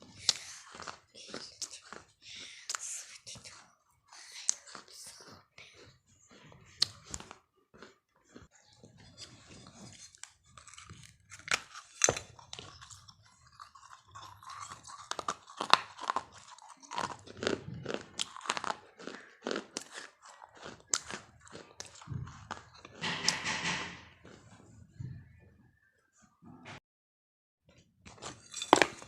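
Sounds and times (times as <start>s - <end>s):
chewing crisp food: 0.0s - 24.7s.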